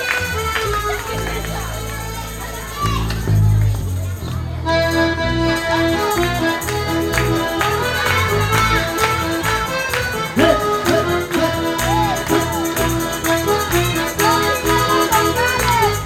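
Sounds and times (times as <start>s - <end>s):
accordion melody: 0.0s - 3.0s, 4.1s - 16.0s
bass notes: 0.0s - 16.0s
percussion beat: 5.5s - 16.0s.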